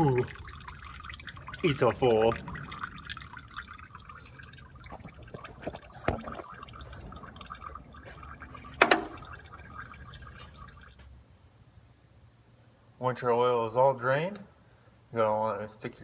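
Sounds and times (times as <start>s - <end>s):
oil draining into pan: 0.0s - 11.0s.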